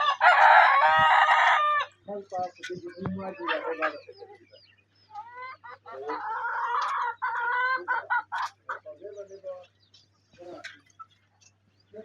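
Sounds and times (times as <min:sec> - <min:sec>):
chicken drawn-out call: 0:00.0 - 0:02.0, 0:05.1 - 0:08.8
chickens clucking: 0:00.0 - 0:12.0.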